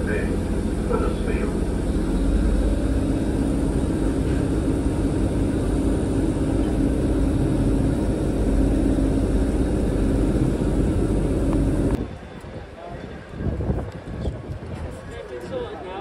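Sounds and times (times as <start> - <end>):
diesel train engine hum: 0.0 - 12.3
wheels rumbling on rails: 0.0 - 15.0.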